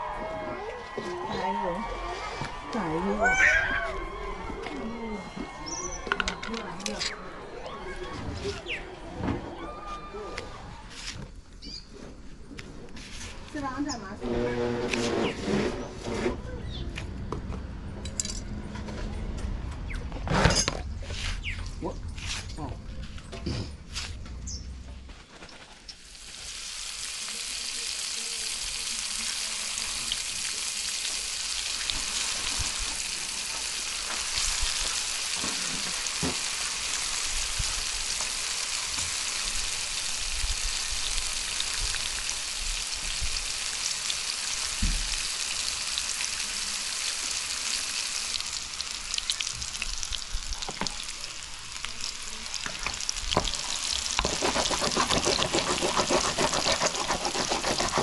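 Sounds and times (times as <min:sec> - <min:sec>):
fillets sizzling in oil: 0:25.8 - 0:58.0.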